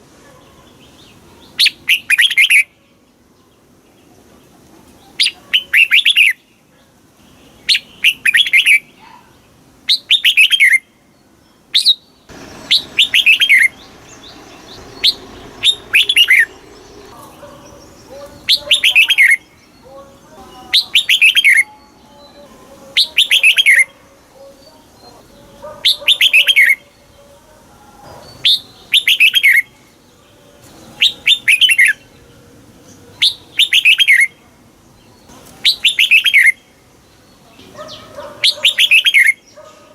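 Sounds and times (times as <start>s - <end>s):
bird chirping phrases: 0.0s - 39.9s.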